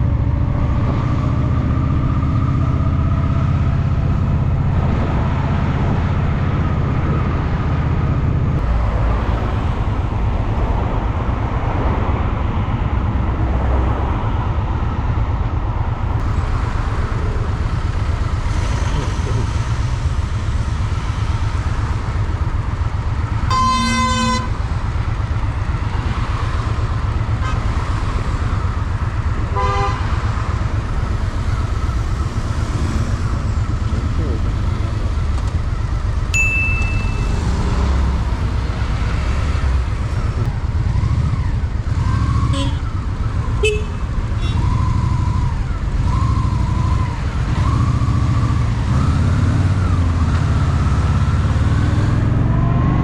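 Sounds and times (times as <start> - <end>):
road and wind noise: 0.0 - 53.0
motorcycle engine running: 16.1 - 52.1
vehicle horn honking: 23.5 - 24.6, 29.5 - 30.0, 42.5 - 42.9, 43.6 - 44.6.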